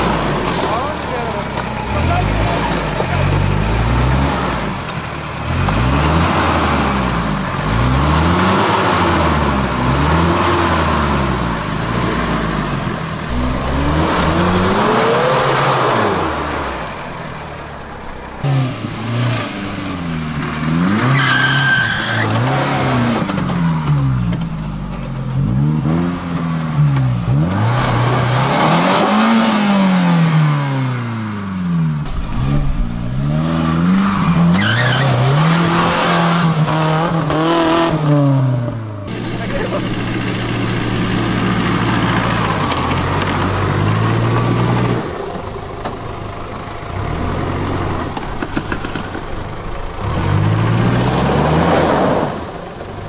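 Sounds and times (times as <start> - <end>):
engine revving up and down: 0.0 - 17.4, 18.3 - 24.3, 25.4 - 45.2, 49.9 - 52.6
high-pitched squeal: 13.2 - 17.4, 18.4 - 23.0, 32.1 - 37.0.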